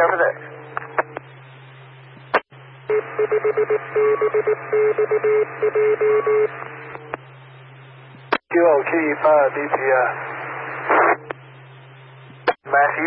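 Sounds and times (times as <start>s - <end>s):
steady hum: 0.0s - 13.0s
electronic beep tones: 2.9s - 6.5s.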